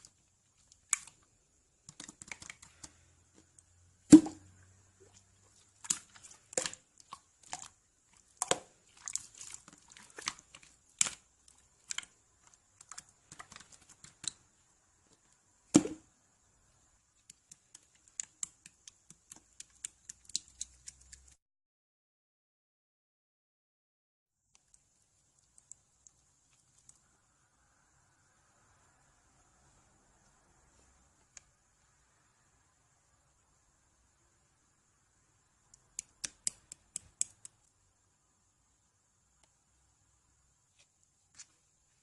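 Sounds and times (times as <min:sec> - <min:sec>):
small clicks and taps: 0:01.8 - 0:03.7, 0:35.7 - 0:37.7.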